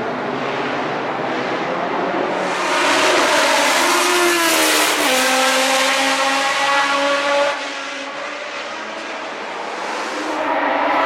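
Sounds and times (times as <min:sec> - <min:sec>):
racing car engine passing at high revs: 0:00.0 - 0:11.0.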